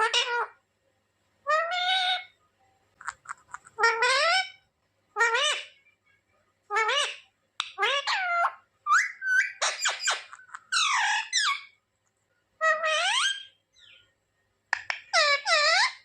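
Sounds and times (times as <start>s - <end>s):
parrot squeaky calls: 0.0s - 0.6s, 1.5s - 2.4s, 3.0s - 4.6s, 5.2s - 5.8s, 6.7s - 11.8s, 12.6s - 14.0s, 14.8s - 16.0s.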